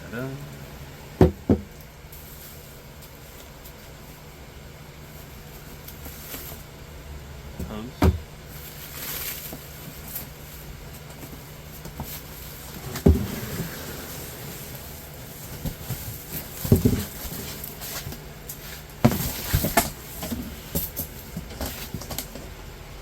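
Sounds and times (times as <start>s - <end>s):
low steady hum: 0.0s - 23.0s
knocks and rustles of parts: 7.6s - 22.5s.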